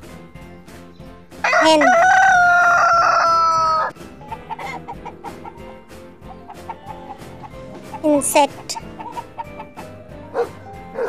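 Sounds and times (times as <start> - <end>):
background music: 0.0 - 11.0
rooster crowing: 1.4 - 3.9
chicken clucking: 1.5 - 11.0.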